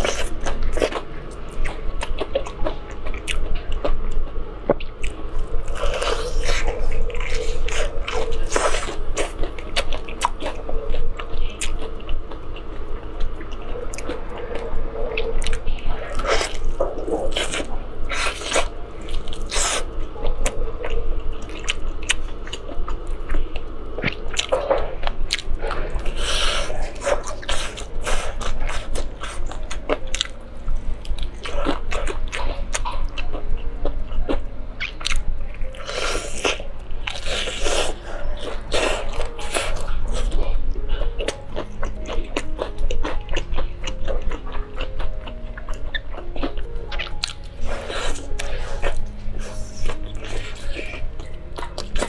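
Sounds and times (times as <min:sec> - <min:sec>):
chewing: 0:00.0 - 0:52.0.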